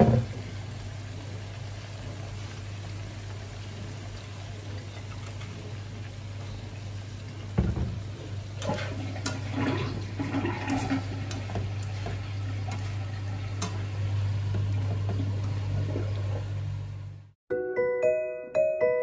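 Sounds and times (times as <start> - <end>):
vegetables sizzling in a pan: 0.0 - 17.2
spatula scraping a pan: 8.6 - 13.8.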